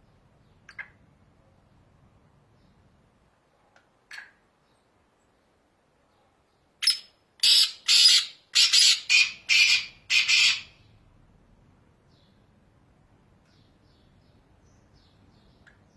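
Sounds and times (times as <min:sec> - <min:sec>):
francolin harsh calls: 0:06.8 - 0:10.8.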